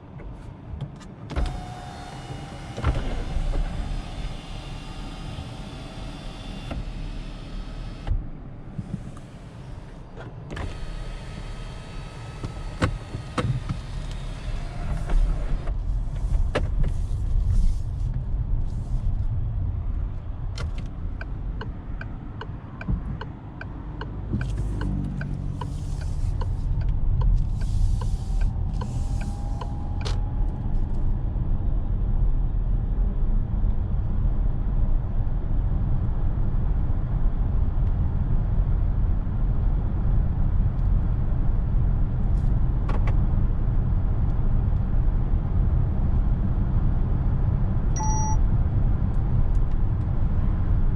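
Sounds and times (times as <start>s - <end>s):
road and tyre rumble: 0.0s - 50.9s.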